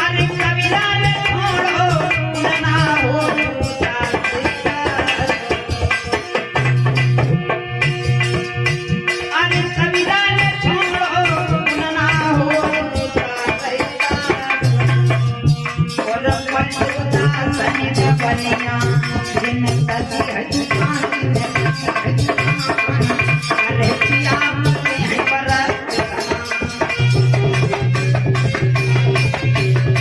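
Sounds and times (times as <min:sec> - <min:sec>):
rattling hand percussion: 0:00.0 - 0:30.0
tabla beat: 0:00.0 - 0:30.0
wavering melody line: 0:17.2 - 0:30.0.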